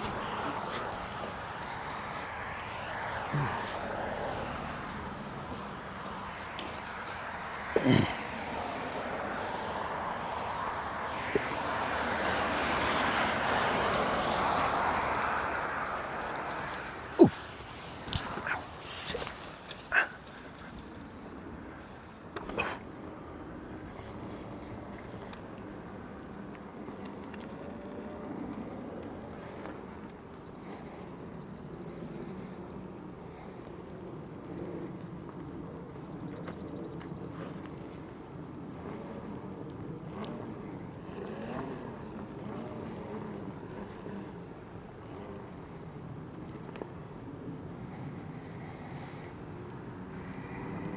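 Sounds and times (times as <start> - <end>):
passing vehicle road noise: 0.0 - 19.8
electric unicycle rolling and motor: 0.0 - 50.9.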